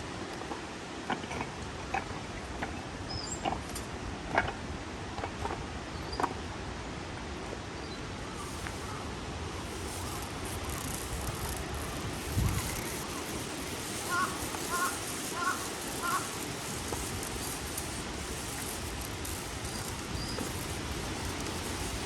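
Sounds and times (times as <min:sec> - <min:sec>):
crow cawing: 0:14.0 - 0:16.3.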